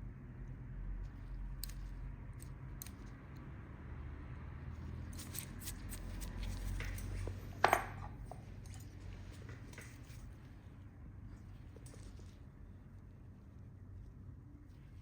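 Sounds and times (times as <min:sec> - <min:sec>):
toenail nippers clicking and scraping: 0:01.4 - 0:03.4.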